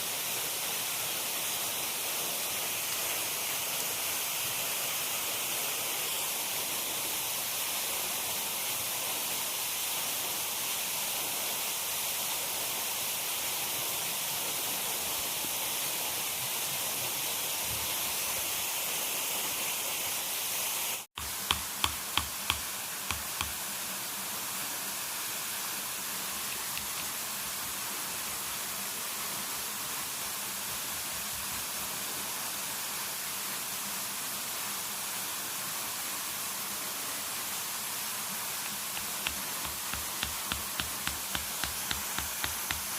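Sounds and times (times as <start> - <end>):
rushing water: 0.0 - 42.9
sharp knocks: 21.5 - 23.6, 39.0 - 42.9.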